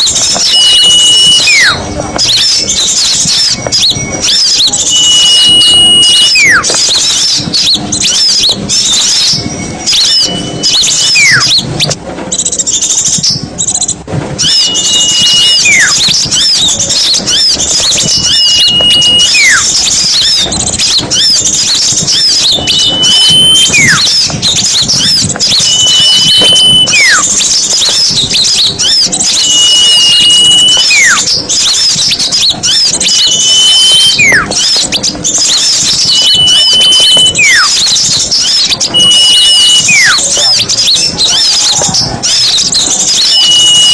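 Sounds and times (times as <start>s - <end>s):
songbirds chirping and chattering: 0.0s - 43.9s
loud high falling whistle: 0.4s - 7.2s, 14.4s - 16.6s, 17.3s - 20.5s, 22.1s - 24.2s, 25.0s - 27.4s, 28.0s - 34.8s, 35.6s - 40.3s, 43.0s - 43.9s.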